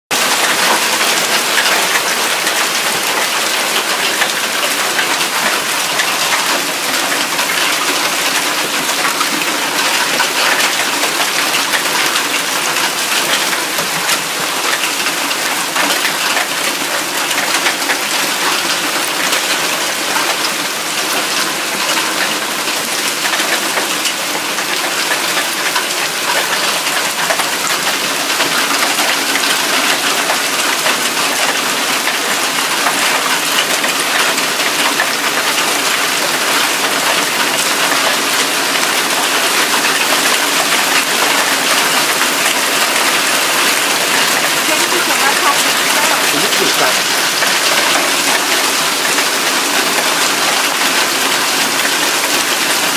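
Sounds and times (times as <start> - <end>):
hailstones clicking: 0.2 - 52.9
heavy rain hissing: 33.9 - 52.9.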